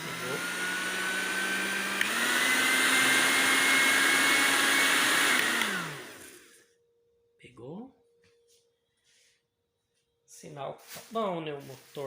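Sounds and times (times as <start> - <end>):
blender motor whine: 0.0 - 6.7.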